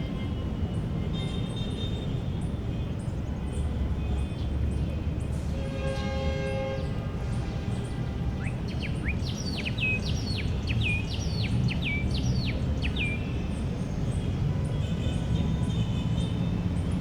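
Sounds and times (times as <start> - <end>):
songbird singing: 8.4 - 13.5.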